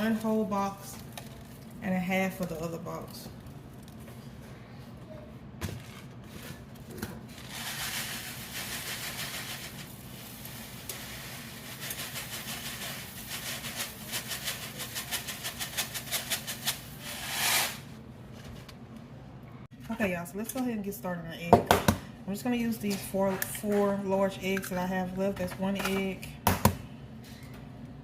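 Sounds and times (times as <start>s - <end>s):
rice grains rattling into pot: 7.3s - 17.8s
boiling water hiss: 7.4s - 17.8s.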